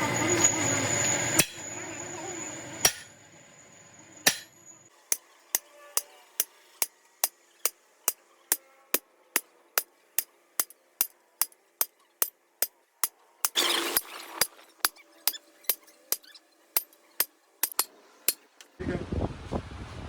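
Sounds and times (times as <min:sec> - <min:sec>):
steady background hum: 0:00.0 - 0:04.9
hammer blows on metal: 0:01.4 - 0:01.6, 0:02.8 - 0:03.1, 0:04.2 - 0:04.5.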